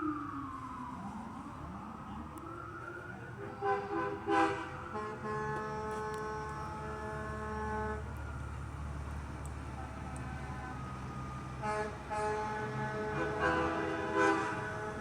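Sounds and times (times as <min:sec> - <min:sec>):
emergency vehicle siren wailing: 0:00.0 - 0:15.0
truck air horn blasts: 0:03.7 - 0:08.0, 0:11.6 - 0:15.0.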